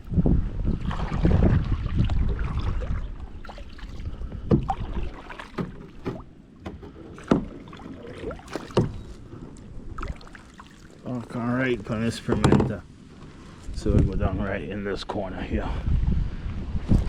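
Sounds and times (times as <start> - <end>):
knocks against boat: 4.4 - 7.7, 8.5 - 9.2, 12.2 - 12.8.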